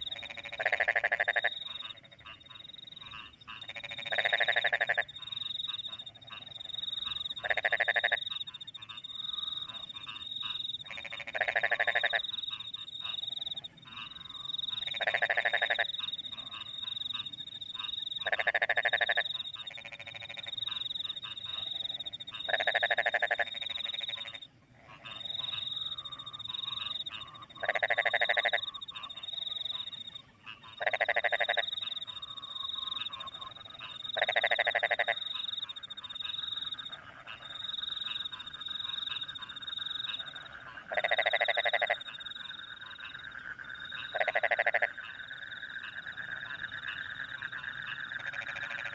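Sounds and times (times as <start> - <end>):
crickets chirping: 0.0 - 24.5, 25.1 - 48.9
frogs croaking: 0.0 - 48.9
low frog chorus trilling: 0.0 - 48.9.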